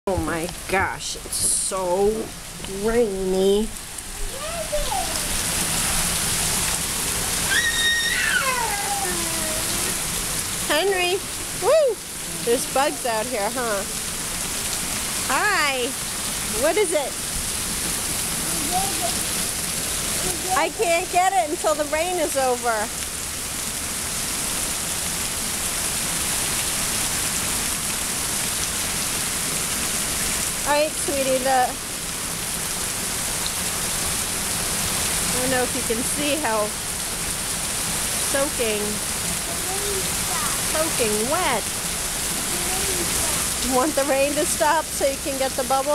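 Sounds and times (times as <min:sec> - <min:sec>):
heavy rain: 0:00.1 - 0:45.9
child's high call: 0:04.2 - 0:05.5, 0:07.4 - 0:10.0, 0:18.4 - 0:19.3, 0:39.5 - 0:40.7, 0:42.5 - 0:43.5.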